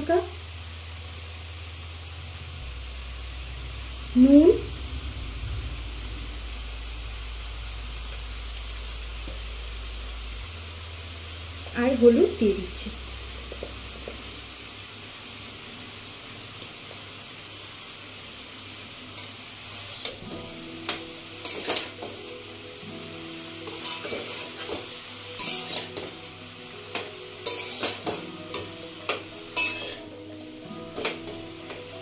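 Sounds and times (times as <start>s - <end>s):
vegetables sizzling in oil: 0.0s - 32.0s
metal spatula scraping a pan: 20.9s - 22.1s, 23.6s - 26.2s, 26.9s - 30.1s.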